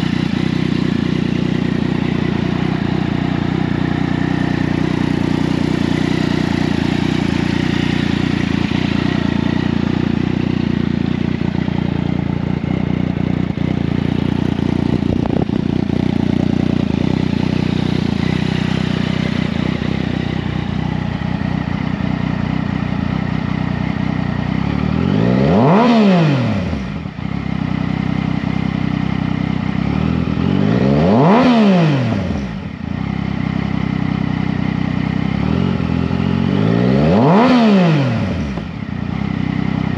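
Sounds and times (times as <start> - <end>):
motorcycle engine idling: 0.0 - 39.9
throttle blips revving engine: 24.7 - 27.0, 30.0 - 32.7, 35.4 - 38.8.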